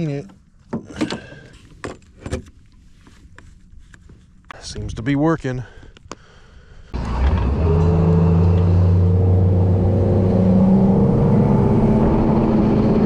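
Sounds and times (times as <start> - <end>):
boat motor running: 7.0 - 13.0.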